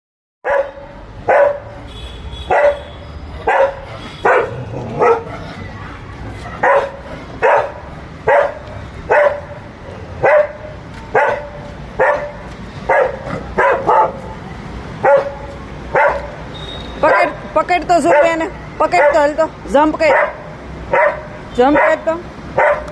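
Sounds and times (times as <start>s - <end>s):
dog barking: 0.4s - 1.8s, 2.5s - 5.4s, 6.6s - 9.6s, 10.2s - 14.4s, 15.0s - 16.4s, 17.0s - 17.4s, 18.0s - 19.3s, 20.0s - 22.9s.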